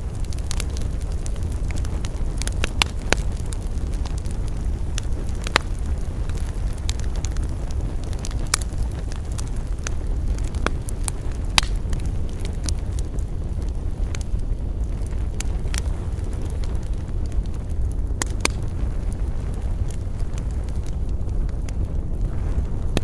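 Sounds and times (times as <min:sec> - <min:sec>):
campfire crackling: 0:00.0 - 0:23.0
low fire rumble: 0:00.0 - 0:23.0.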